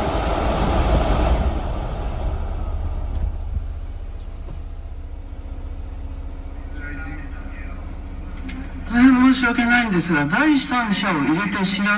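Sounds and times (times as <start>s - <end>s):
rushing noise: 0.0s - 5.8s
truck engine low rumble: 0.0s - 11.9s.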